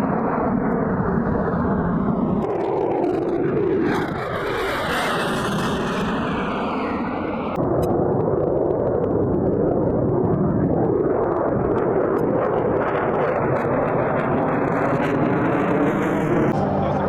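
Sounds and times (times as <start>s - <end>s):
loud jet engine noise: 0.0s - 17.0s.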